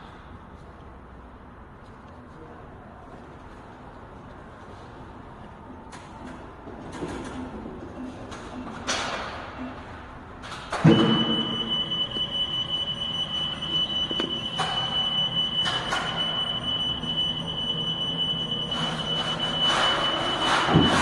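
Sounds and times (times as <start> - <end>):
high-pitched warning tone: 10.9 - 21.0.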